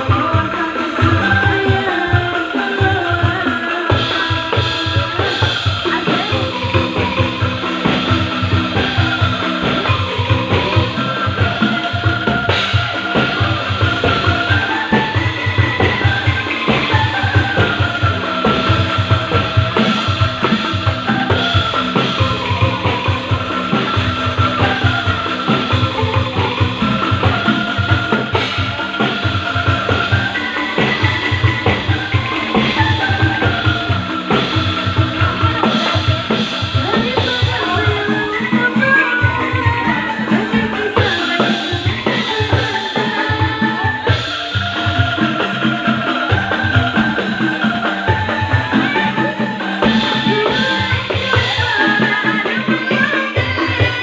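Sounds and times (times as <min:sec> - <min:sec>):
fast drum beat: 0:00.0 - 0:54.0
sliding melody line: 0:00.0 - 0:54.0.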